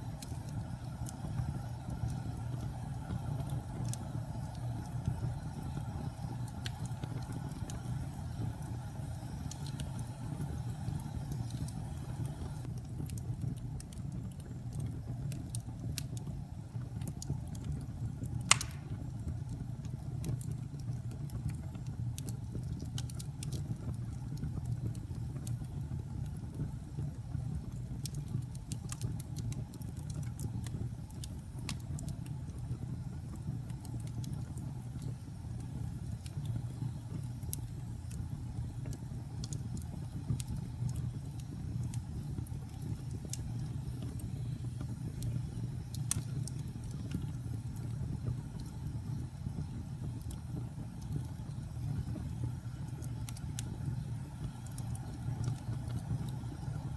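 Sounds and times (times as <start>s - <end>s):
fire crackles: 0.0s - 56.9s
low rumble of flames: 0.0s - 56.9s
loud fire pop: 18.5s - 19.2s.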